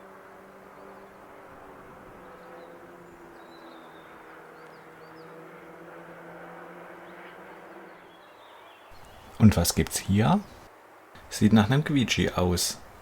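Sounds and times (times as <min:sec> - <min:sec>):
background hiss: 0:08.9 - 0:13.0
faint low hum: 0:08.9 - 0:13.0
bird chirps: 0:09.0 - 0:13.0.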